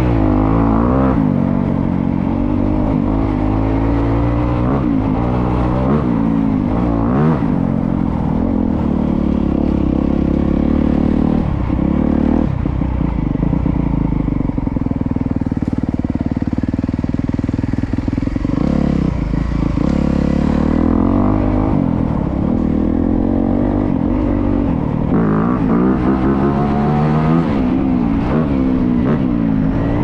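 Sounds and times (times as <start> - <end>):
dirt bike engine revving: 17.9 - 22.0, 22.6 - 30.0.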